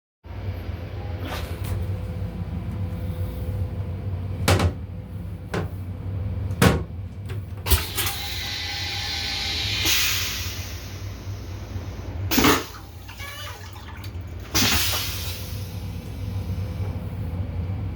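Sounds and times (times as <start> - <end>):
low rumble of railcar: 0.3 - 12.3, 15.0 - 17.9
hiss: 8.2 - 12.1.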